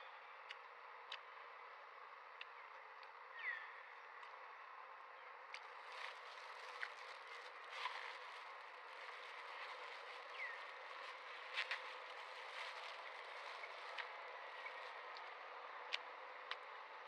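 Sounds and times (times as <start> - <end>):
faint clicks and rustles: 5.5 - 17.0.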